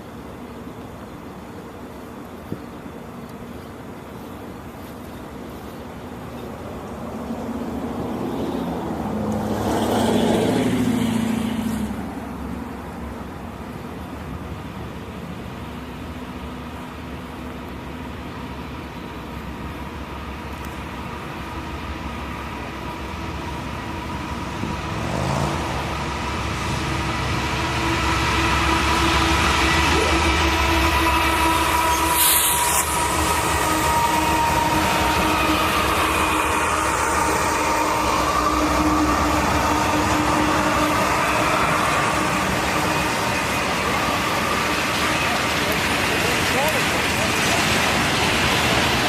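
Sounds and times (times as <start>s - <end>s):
diesel locomotive engine drone: 0.0s - 49.0s
train rumble and hiss: 0.0s - 49.0s.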